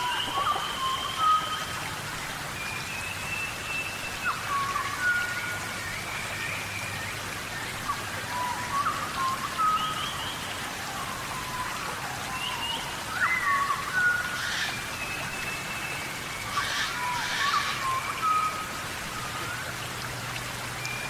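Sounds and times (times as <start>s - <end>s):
animal whistled calls and chirps: 0.0s - 1.9s, 11.0s - 19.7s
steady rain hiss: 0.0s - 21.0s.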